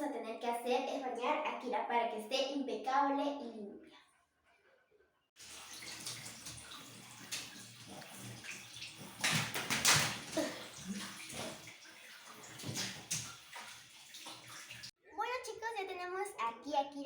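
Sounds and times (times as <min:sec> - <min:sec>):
water splashing and running: 0:05.4 - 0:14.9.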